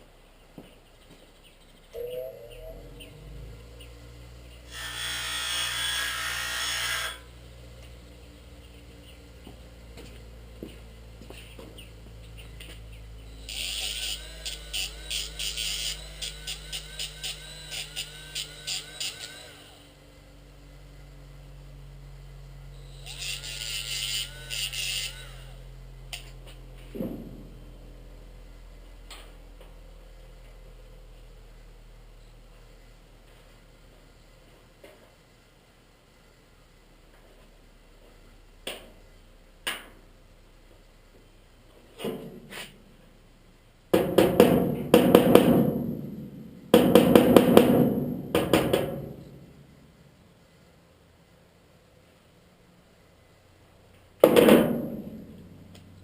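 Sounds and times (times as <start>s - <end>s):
grinder grinding sheet metal: 4.7s - 7.3s, 13.4s - 19.9s, 22.9s - 26.2s
knock: 44.0s - 46.0s
hammer on sheet metal: 44.0s - 49.4s, 54.2s - 55.4s.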